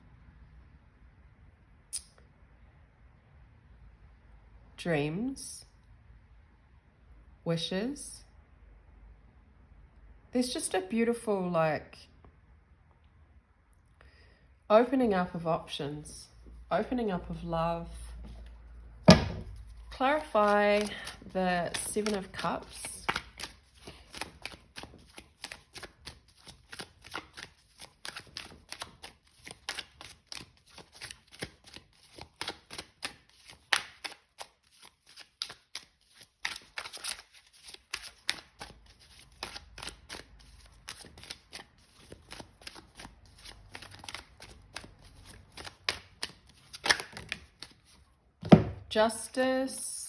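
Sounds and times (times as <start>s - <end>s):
cards being shuffled: 18.2s - 48.7s
card snaps: 45.9s - 47.7s.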